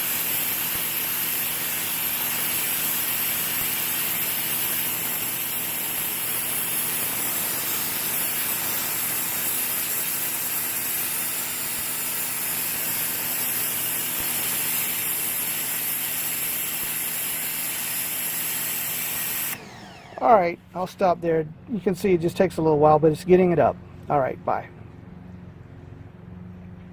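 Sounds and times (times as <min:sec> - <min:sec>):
water jet hissing: 0:00.0 - 0:20.2
electric motor and pump hum: 0:00.0 - 0:24.1.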